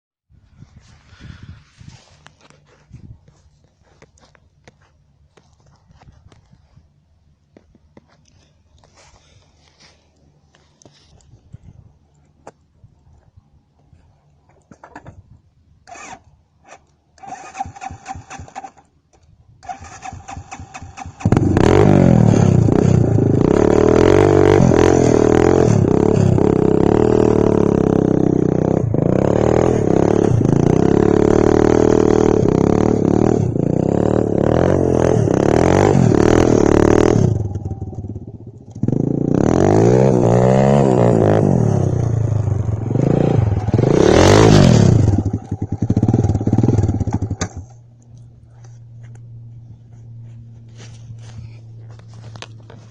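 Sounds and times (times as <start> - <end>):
dirt bike engine revving: 19.7 - 47.8.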